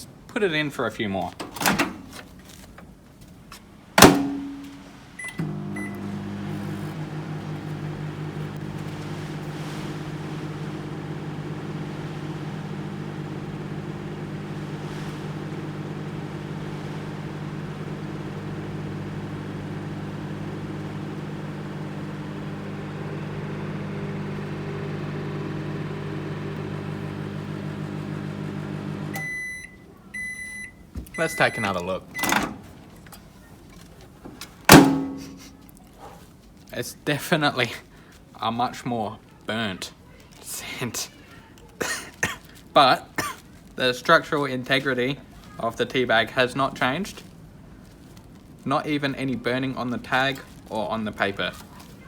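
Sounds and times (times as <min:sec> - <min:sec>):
microwave door shutting: 0:01.4 - 0:02.1, 0:04.0 - 0:29.4, 0:32.2 - 0:32.7, 0:34.6 - 0:35.4
microwave humming: 0:04.0 - 0:33.1, 0:34.1 - 0:35.6
keypad beeps: 0:05.2 - 0:06.0, 0:29.2 - 0:32.4.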